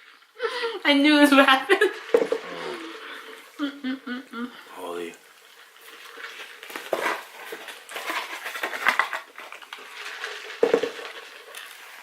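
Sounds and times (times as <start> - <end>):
packaging clatter and rustle: 5.4 - 12.0.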